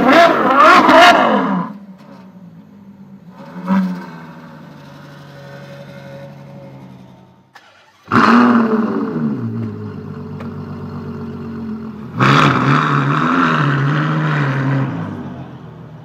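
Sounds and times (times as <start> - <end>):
sports car engine revving: 0.0 - 2.2, 8.0 - 15.8.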